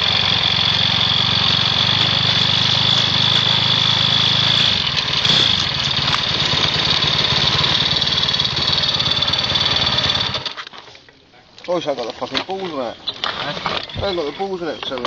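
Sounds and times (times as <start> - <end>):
small engine idling: 0.0 - 10.6.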